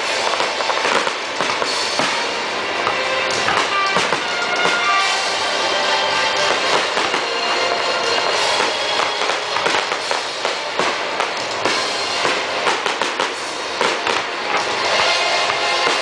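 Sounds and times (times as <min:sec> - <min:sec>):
fireworks bangs and crackles: 0:00.0 - 0:16.0
music playing: 0:00.0 - 0:16.0.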